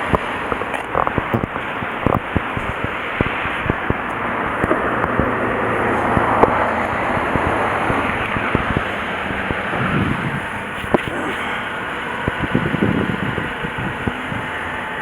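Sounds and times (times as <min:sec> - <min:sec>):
scattered clicks and knocks: 0:00.0 - 0:11.1
car running with low hum: 0:00.0 - 0:15.0
wind on microphone: 0:00.0 - 0:15.0.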